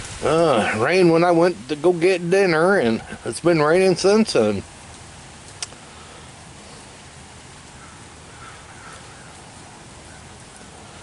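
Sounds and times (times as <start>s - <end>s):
light rain on pavement: 0.0s - 11.0s.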